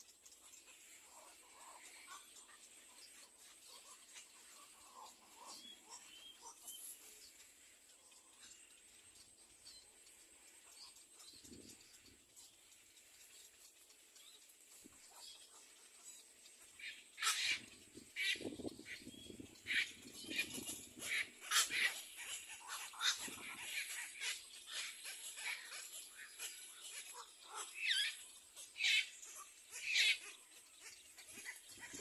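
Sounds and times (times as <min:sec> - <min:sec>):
egret chicks squeaky begging calls: 0:16.7 - 0:32.0.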